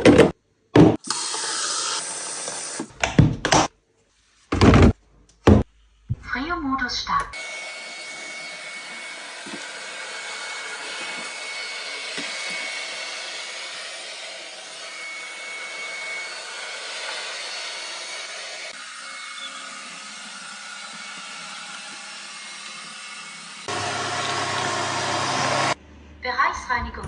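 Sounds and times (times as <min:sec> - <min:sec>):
robot vacuum fan hissing: 0:07.4 - 0:25.8.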